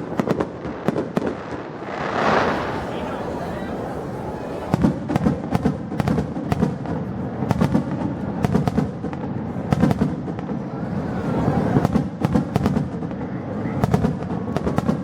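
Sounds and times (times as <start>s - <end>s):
fireworks cracking and booming: 0.0s - 10.7s, 11.4s - 15.0s
steady low rumble: 1.6s - 4.8s.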